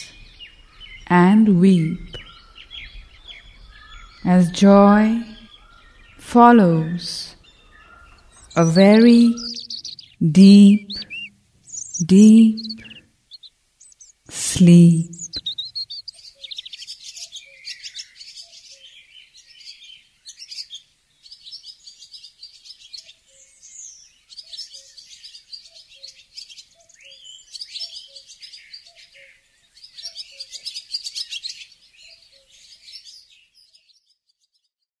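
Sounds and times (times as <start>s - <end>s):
small birds chirping: 0.0s - 34.9s
faint lower bird call: 1.8s - 19.0s.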